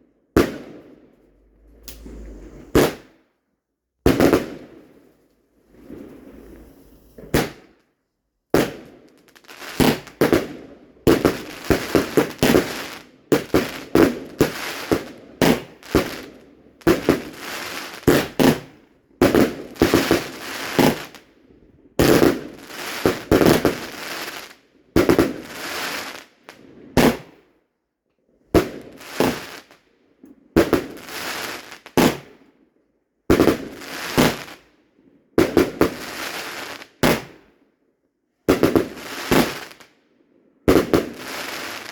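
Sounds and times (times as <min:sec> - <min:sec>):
fireworks banging and crackling: 0:00.4 - 0:03.2, 0:04.1 - 0:05.0, 0:05.7 - 0:07.7, 0:08.6 - 0:21.2, 0:22.0 - 0:27.4, 0:28.6 - 0:29.7, 0:30.6 - 0:32.3, 0:33.3 - 0:34.6, 0:35.4 - 0:37.4, 0:38.5 - 0:39.9, 0:40.7 - 0:41.9.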